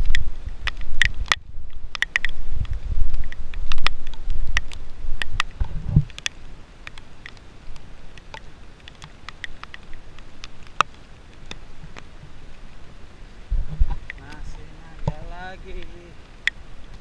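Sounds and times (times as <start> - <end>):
wind buffeting microphone: 0.0 - 6.2, 13.4 - 16.1
sharp ticks and taps: 0.0 - 12.0, 14.0 - 17.0.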